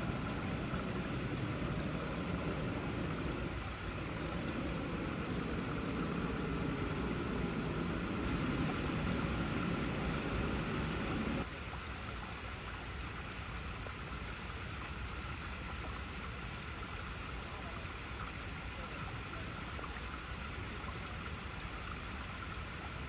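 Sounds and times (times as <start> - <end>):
water rushing over rocks: 0.0 - 11.5.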